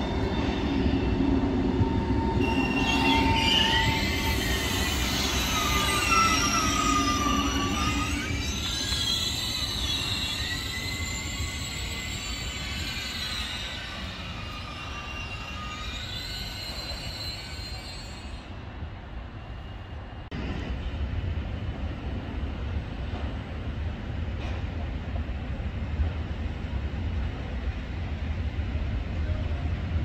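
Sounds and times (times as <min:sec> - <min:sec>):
train wheels squealing on rails: 0:00.0 - 0:21.0.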